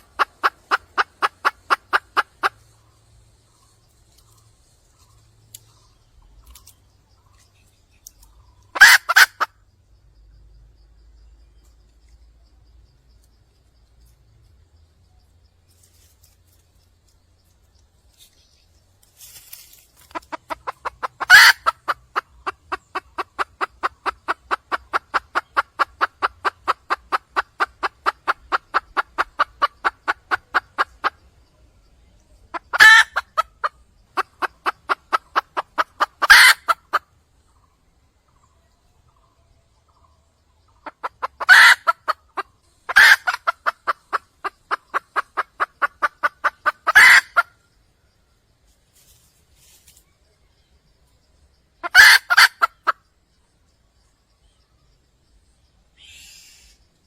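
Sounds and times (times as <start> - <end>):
hen clucking: 0.0 - 6.6, 7.2 - 9.6, 19.9 - 31.5, 32.2 - 37.7, 38.3 - 47.6, 51.7 - 53.0.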